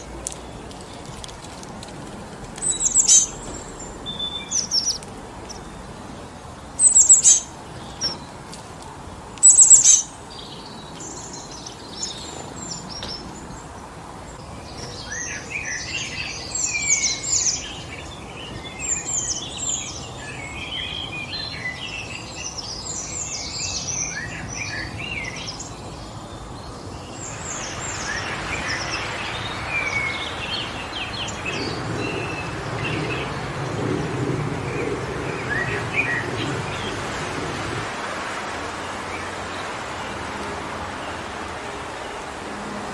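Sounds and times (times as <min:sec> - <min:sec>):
songbirds calling and chirping: 0:00.0 - 0:42.9
wind in the trees: 0:00.0 - 0:42.9.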